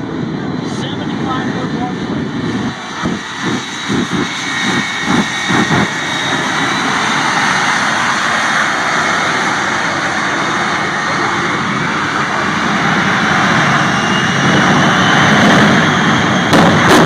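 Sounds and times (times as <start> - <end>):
jet engine truck roaring: 0.0 - 17.0.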